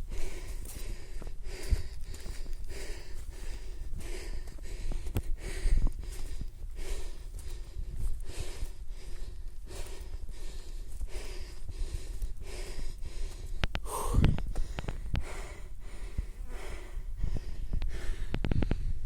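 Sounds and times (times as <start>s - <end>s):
heavy breathing: 0.0s - 19.0s.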